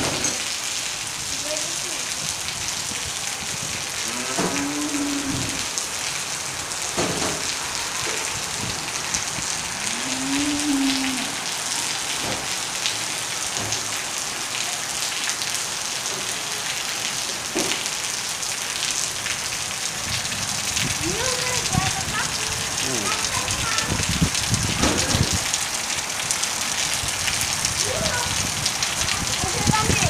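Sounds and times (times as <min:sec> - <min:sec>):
drips and splashes: 0:00.0 - 0:30.0
rain pouring on pavement: 0:00.0 - 0:30.0
cow mooing: 0:04.0 - 0:05.6, 0:09.9 - 0:11.4.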